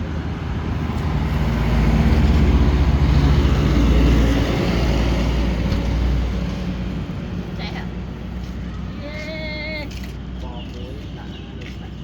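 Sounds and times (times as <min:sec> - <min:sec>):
vehicle engine passing by: 0:00.0 - 0:08.9.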